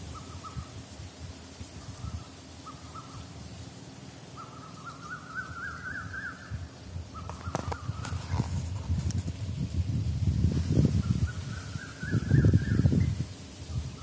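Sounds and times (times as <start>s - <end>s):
bird calling repeated notes: 0.0s - 0.7s, 1.9s - 3.3s, 4.3s - 8.0s
low microphone rumble: 0.0s - 14.0s.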